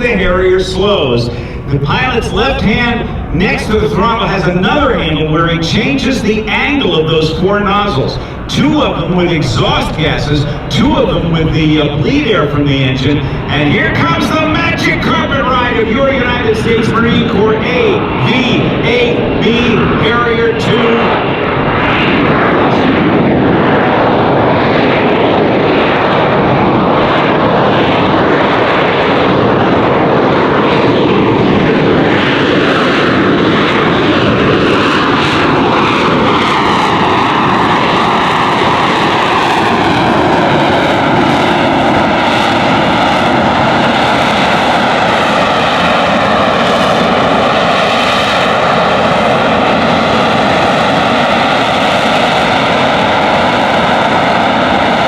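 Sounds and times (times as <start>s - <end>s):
hollow phasing tone sweeping down: 0.0s - 13.5s
jet engine roar: 0.0s - 55.0s.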